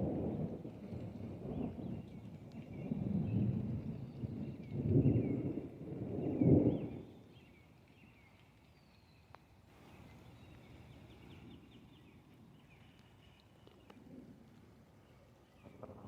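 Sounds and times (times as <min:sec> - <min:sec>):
thunder rumble: 0:00.0 - 0:07.2, 0:15.6 - 0:16.0
birds chirping: 0:06.4 - 0:14.0.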